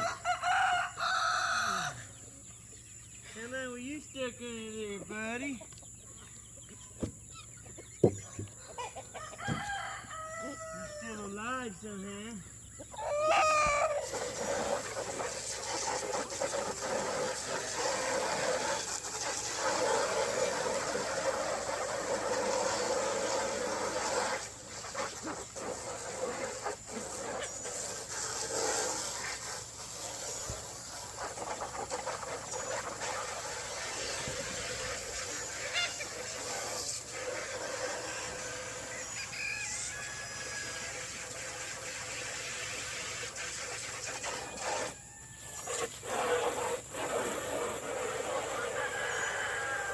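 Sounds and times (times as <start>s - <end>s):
chickens clucking: 1.0s - 49.9s
rustling hiss: 13.6s - 49.9s.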